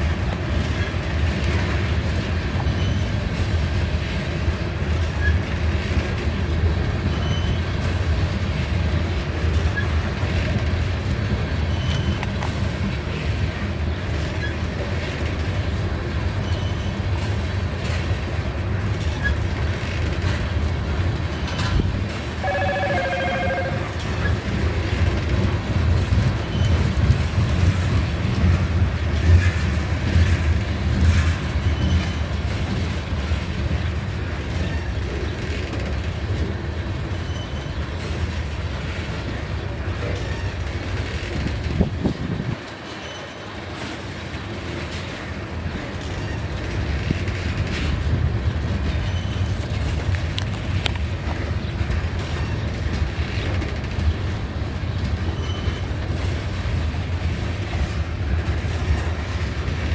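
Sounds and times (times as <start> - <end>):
train wheels rumbling on track: 0.0 - 59.9
high-pitched squeaks and clicks: 11.7 - 12.5.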